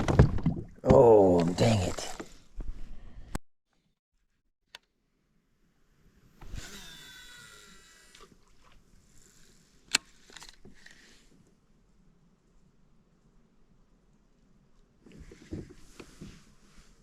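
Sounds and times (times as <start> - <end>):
fishing reel spool whirring: 6.4 - 8.5.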